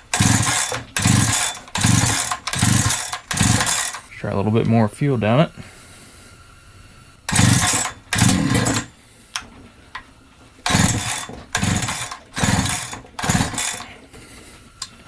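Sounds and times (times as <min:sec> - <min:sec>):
chainsaw engine cranking: 0:00.0 - 0:04.1, 0:07.3 - 0:08.9, 0:10.6 - 0:14.0
chainsaw starter rope pulls: 0:00.0 - 0:04.1, 0:07.3 - 0:08.9, 0:10.6 - 0:14.1.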